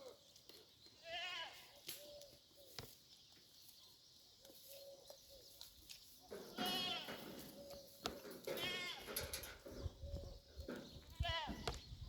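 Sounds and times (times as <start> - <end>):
goat bleating: 1.0 - 1.7, 6.5 - 7.2, 8.5 - 9.2, 11.1 - 11.7.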